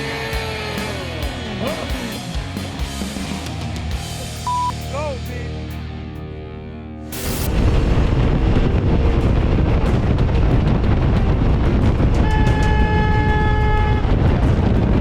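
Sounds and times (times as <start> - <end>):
motorcycle riding on road: 7.6 - 15.0
motorcycle horn: 12.2 - 14.1.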